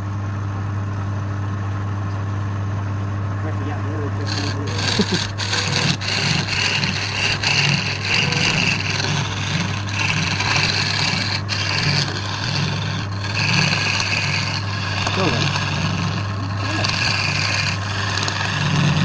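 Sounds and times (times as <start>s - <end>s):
wood lathe humming: 3.7s - 19.0s
turning tool scraping wood: 4.2s - 19.0s.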